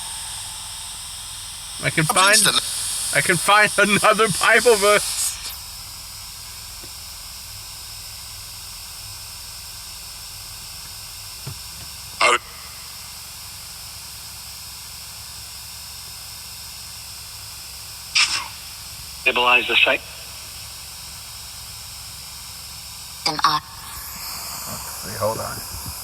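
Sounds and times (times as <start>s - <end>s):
static hiss: 0.0s - 5.7s, 18.2s - 21.2s, 23.3s - 26.0s.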